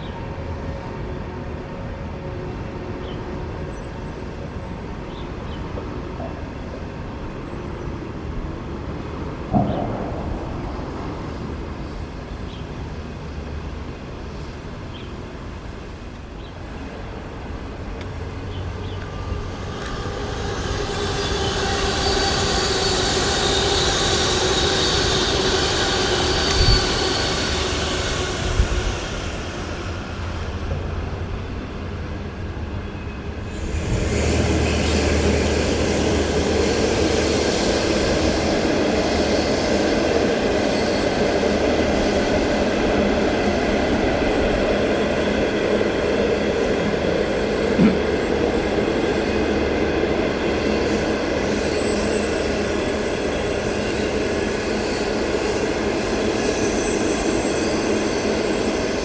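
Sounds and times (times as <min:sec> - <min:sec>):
train wheel and rail noise: 0:00.0 - 0:59.0
high wheel squeal: 0:18.0 - 0:42.4, 0:50.4 - 0:59.0.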